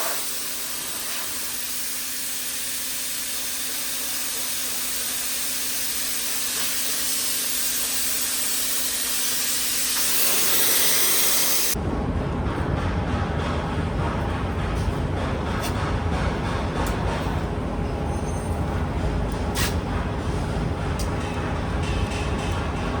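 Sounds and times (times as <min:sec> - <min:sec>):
compressed air hissing: 0:00.0 - 0:11.8, 0:19.5 - 0:19.8.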